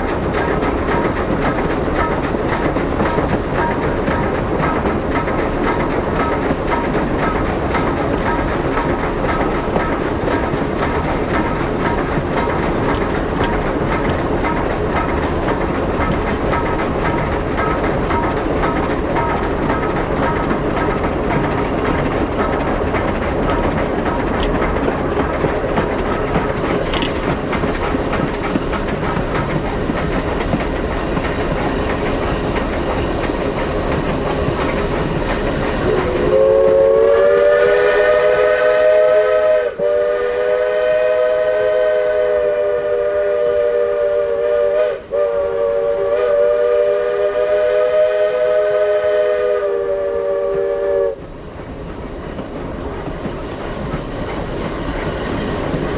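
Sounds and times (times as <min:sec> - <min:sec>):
steam train rumbling on rails: 0:00.0 - 0:55.9
steam locomotive chime whistle: 0:35.8 - 0:51.2.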